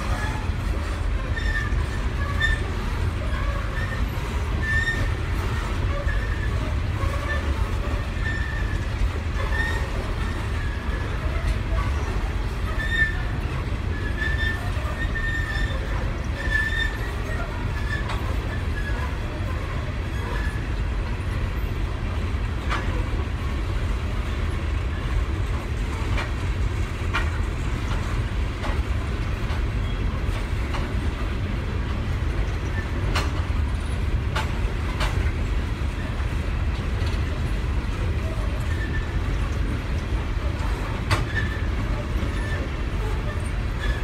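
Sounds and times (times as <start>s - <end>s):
wheels rumbling on rail: 0.0s - 44.0s
clanks and clicks from cars: 25.4s - 35.6s, 38.7s - 44.0s.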